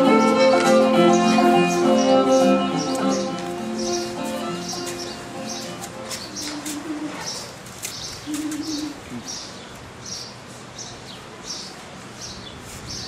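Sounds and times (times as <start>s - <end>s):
low cooing notes: 0.0s - 7.5s, 8.3s - 9.3s.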